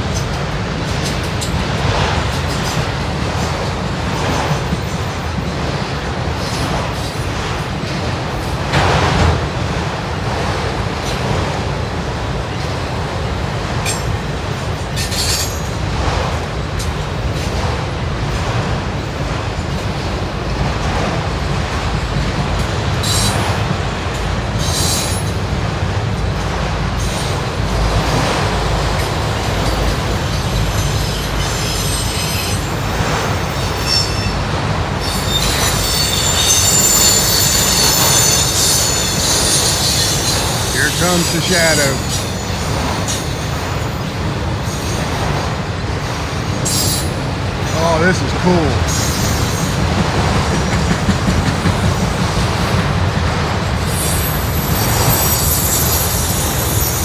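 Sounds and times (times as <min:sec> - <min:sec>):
train wheels rumbling on rail: 0:00.0 - 0:57.0
short high squeaks: 0:35.0 - 0:41.3
high-pitched wheel squeal: 0:35.0 - 0:43.8, 0:53.8 - 0:57.0.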